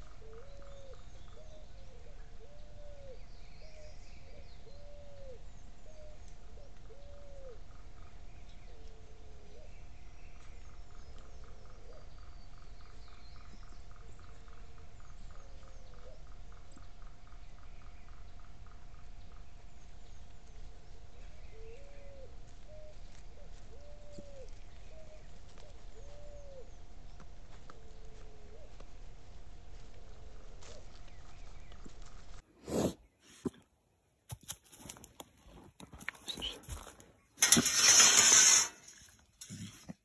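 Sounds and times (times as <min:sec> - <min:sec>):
birds calling with bending notes: 0:00.0 - 0:29.0, 0:36.1 - 0:39.6.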